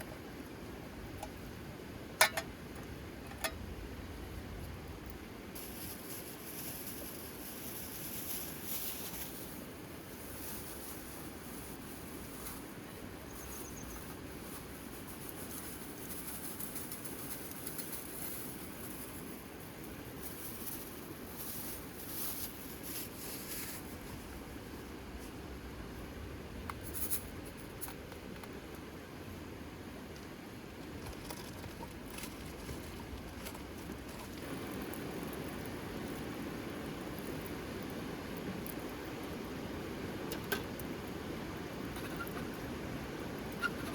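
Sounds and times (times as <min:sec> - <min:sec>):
faint high chirps: 0:13.2 - 0:14.1
steady rain: 0:33.1 - 0:43.9.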